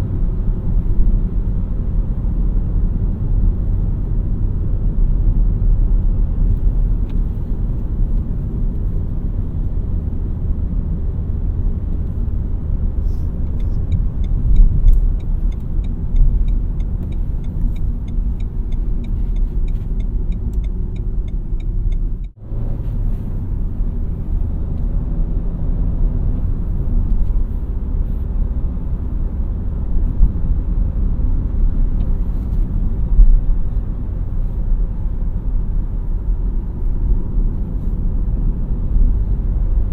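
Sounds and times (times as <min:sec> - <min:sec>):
car engine running: 0:00.0 - 0:39.9
road noise: 0:00.0 - 0:39.9
regular ticking: 0:13.4 - 0:22.4.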